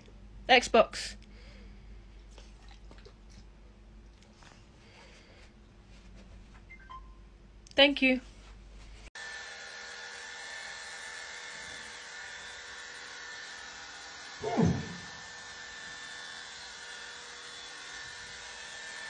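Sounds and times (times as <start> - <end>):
small electric motor whirring: 9.2 - 19.0.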